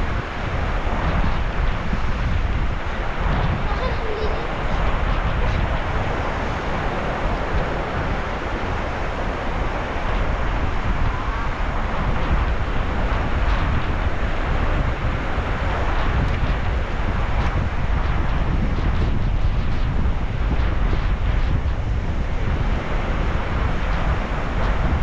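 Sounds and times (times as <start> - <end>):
sea surf washing: 0.0 - 25.0
wind buffeting microphone: 0.0 - 25.0.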